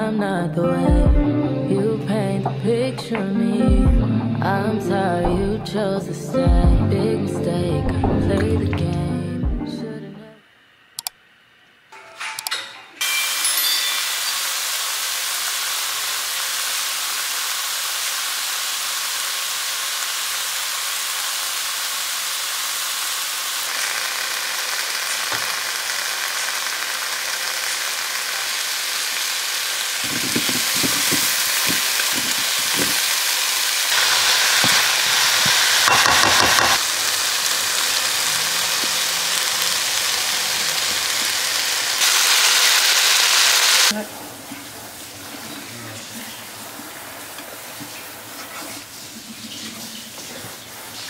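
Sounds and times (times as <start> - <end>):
vegetables sizzling in oil: 13.0 - 44.0, 46.4 - 49.3
utensil scraping a pan: 30.0 - 33.1, 34.0 - 36.8.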